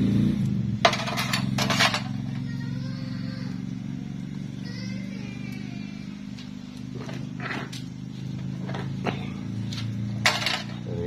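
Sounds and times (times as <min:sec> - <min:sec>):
motor humming: 0:01.3 - 0:11.0.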